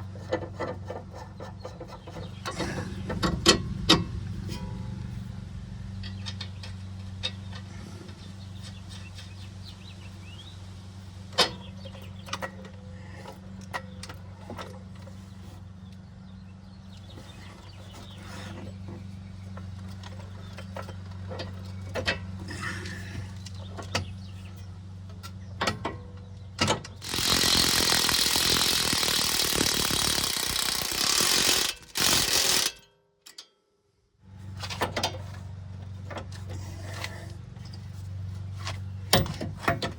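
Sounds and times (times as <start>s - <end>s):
low hum: 2.1s - 14.1s
ratchet clicks: 26.9s - 33.5s
hand tools clanking: 27.0s - 32.7s.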